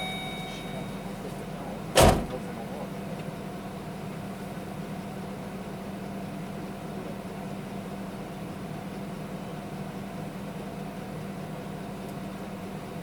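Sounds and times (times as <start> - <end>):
van engine humming: 0.0 - 7.5
loud sharp thump: 2.0 - 2.4.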